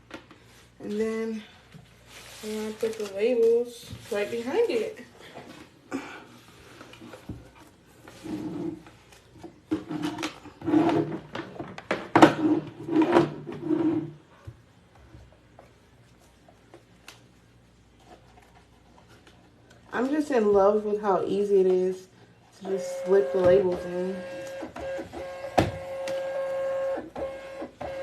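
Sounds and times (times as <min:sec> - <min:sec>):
paper labels rustling and scraping: 0:01.9 - 0:05.0.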